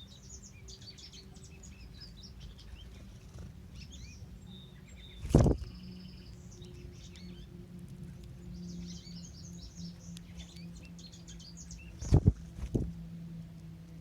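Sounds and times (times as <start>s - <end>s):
low steady hum: 0.0s - 14.0s
songbird singing: 0.0s - 14.0s.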